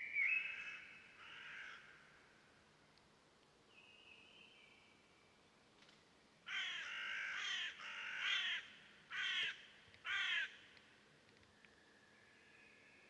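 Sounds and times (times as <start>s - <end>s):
bird harsh raspy calls: 6.5s - 10.6s.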